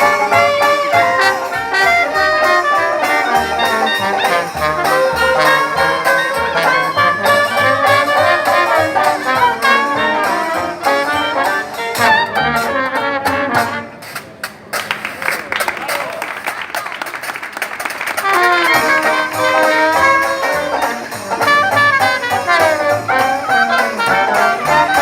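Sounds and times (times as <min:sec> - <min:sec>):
walking bass line: 0:00.0 - 0:13.8
trumpets and trombones: 0:00.0 - 0:14.2, 0:17.8 - 0:25.0.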